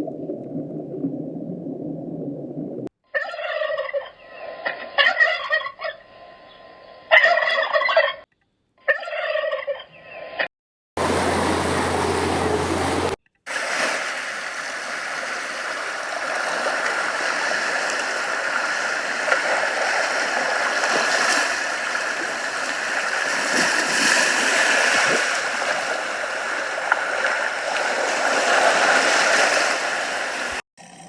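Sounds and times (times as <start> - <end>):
faint splashes: 11.0 - 30.6
stream running water: 11.0 - 30.6.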